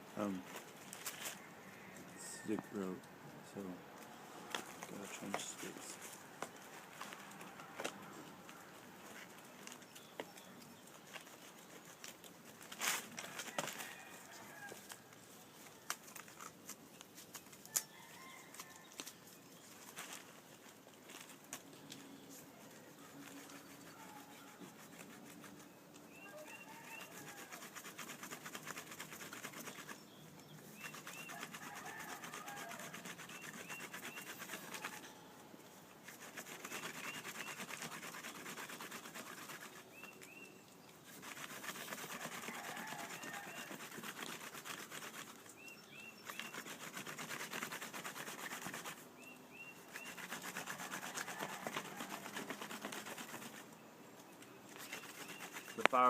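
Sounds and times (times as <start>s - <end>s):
bow drill spindle rubbing wood: 41.1s - 45.3s.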